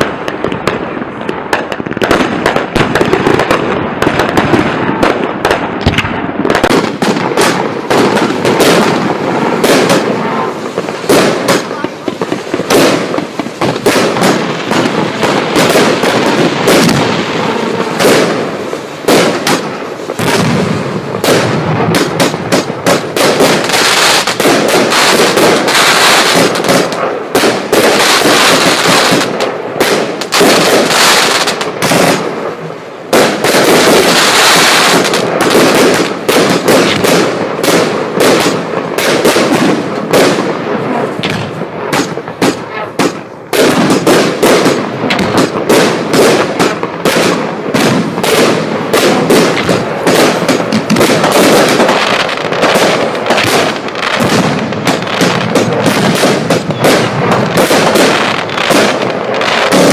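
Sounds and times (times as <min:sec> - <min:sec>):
fireworks launching and bursting: 0:00.0 - 0:59.9.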